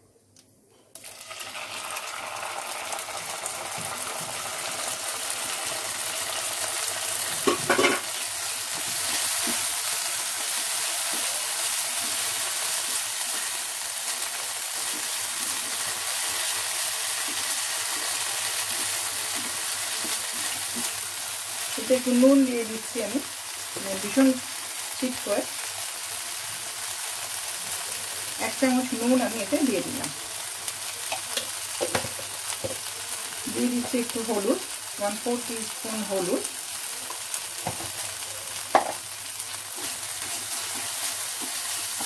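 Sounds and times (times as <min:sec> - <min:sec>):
paste sizzling in hot oil: 0:01.0 - 0:42.0
spatula stirring in a pan: 0:05.6 - 0:21.8, 0:36.6 - 0:42.0.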